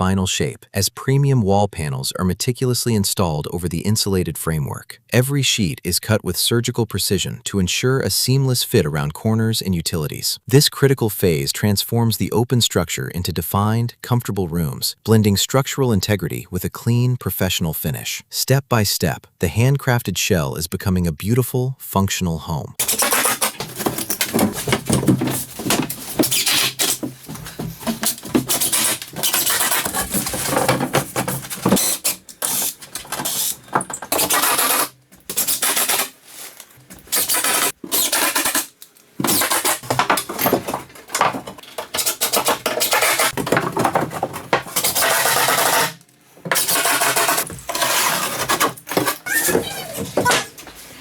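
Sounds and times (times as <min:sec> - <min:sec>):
tool cutting wall panels: 0:22.8 - 0:51.0.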